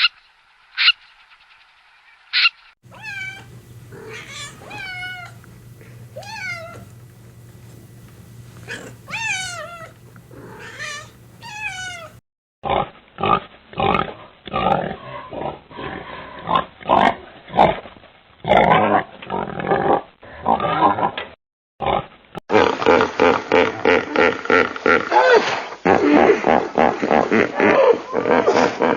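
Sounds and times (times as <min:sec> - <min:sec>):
cat meowing: 0:02.9 - 0:07.0, 0:08.6 - 0:12.2
animal giving short rough calls: 0:02.9 - 0:12.1.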